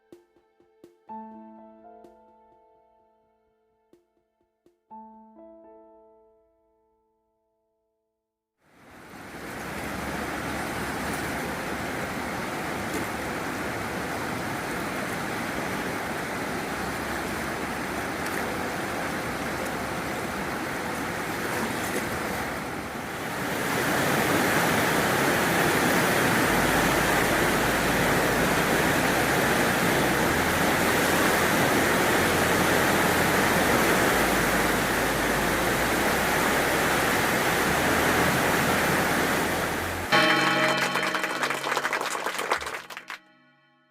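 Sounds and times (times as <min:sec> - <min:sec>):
river water rushing: 0:08.8 - 0:42.0.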